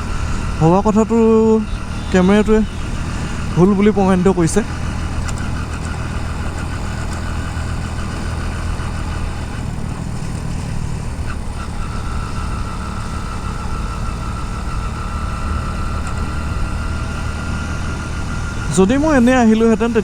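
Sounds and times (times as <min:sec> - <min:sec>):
thin high whine: 0:00.0 - 0:06.9
motorcycle engine running: 0:00.0 - 0:20.0
road noise: 0:00.0 - 0:20.0.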